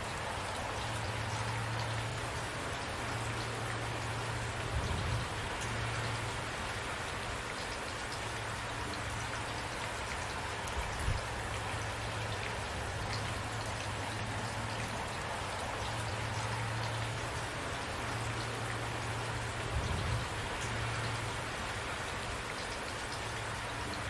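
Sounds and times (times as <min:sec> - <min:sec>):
rain falling: 0:00.0 - 0:24.0.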